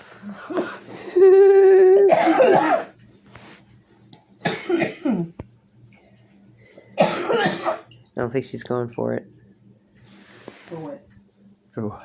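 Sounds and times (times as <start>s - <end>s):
raspy cough-like burst: 2.1s - 3.0s, 4.4s - 5.3s, 7.0s - 7.9s.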